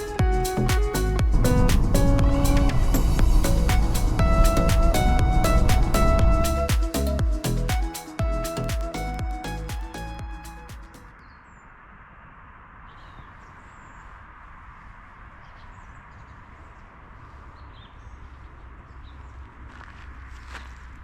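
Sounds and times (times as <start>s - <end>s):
low rumble: 0.2s - 9.7s.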